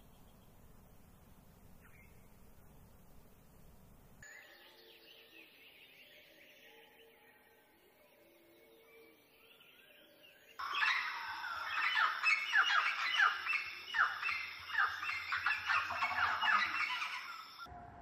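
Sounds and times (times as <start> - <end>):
loud downward-sliding bird calls: 10.6 - 17.7.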